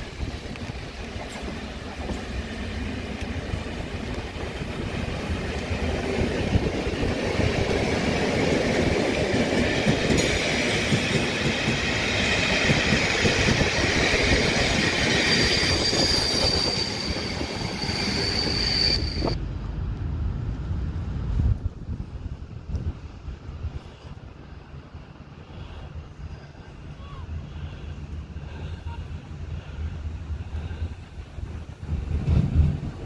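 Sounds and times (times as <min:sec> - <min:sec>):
train passing: 0:00.0 - 0:33.0
wheels squealing on curve: 0:14.6 - 0:19.4.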